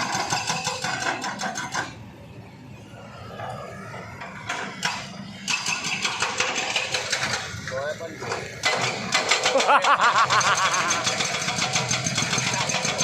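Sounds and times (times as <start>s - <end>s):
small engine knocking: 8.6s - 13.0s.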